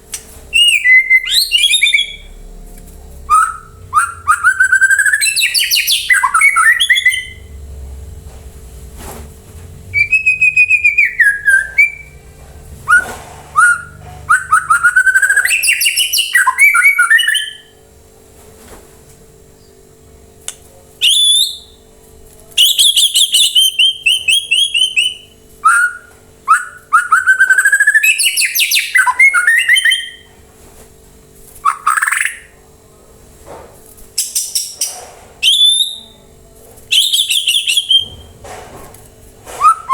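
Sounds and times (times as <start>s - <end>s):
bird singing whistles and trills: 0.5s - 2.4s, 3.3s - 7.5s, 9.9s - 12.2s, 12.8s - 17.7s, 21.0s - 21.8s, 22.6s - 30.3s, 31.6s - 32.5s, 34.2s - 36.2s, 36.9s - 38.3s, 39.6s - 39.9s.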